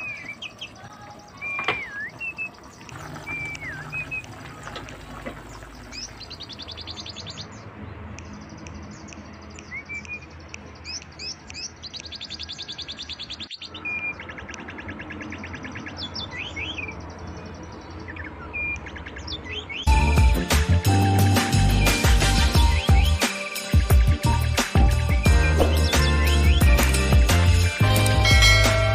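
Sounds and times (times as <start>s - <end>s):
songbirds chirping and trilling: 0.0s - 28.9s.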